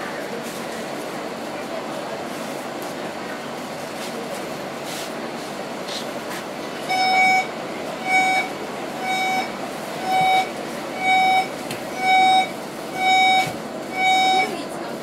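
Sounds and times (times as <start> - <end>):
train carriage hum: 0.0 - 15.0
door warning beeps: 7.0 - 14.5.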